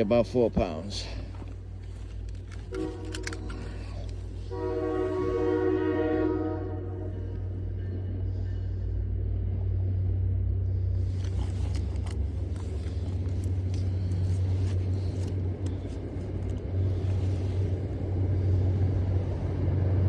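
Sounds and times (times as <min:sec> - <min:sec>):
steady low rumble: 0:00.0 - 0:20.0
rustling: 0:01.2 - 0:05.6, 0:11.0 - 0:18.1.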